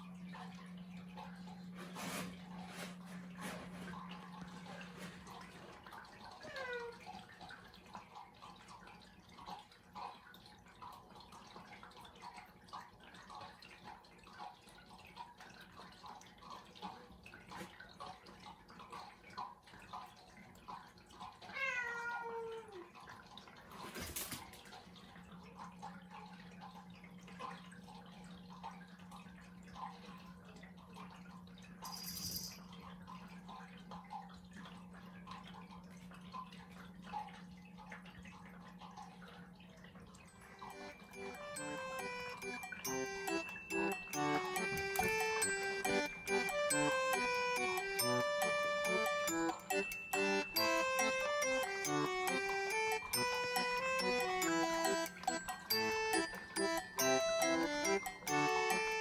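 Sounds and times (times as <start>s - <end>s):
cat meowing: 6.4s - 7.0s, 21.5s - 22.8s.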